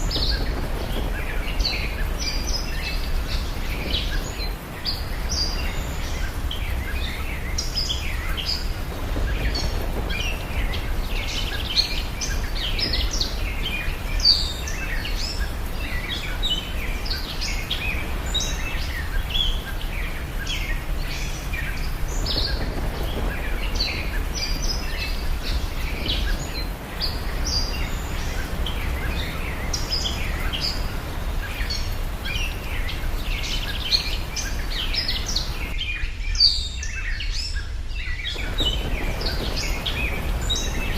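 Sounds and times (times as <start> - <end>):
small birds chirping: 0.0 - 40.9
steady low rumble: 38.2 - 40.9.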